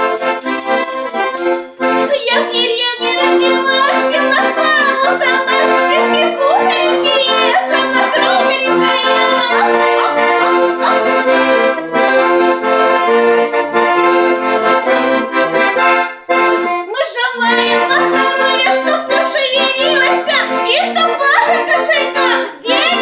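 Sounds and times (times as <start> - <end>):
accordion folk tune: 0.0 - 23.0.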